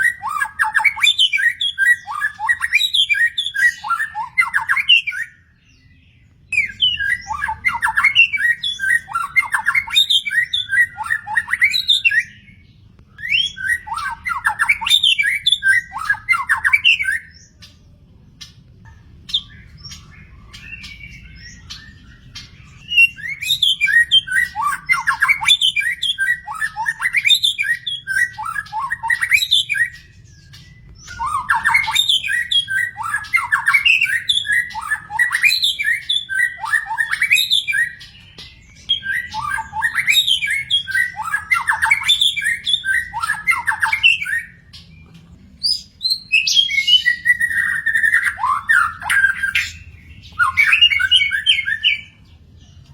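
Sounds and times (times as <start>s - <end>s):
songbird singing: 0.0s - 52.9s.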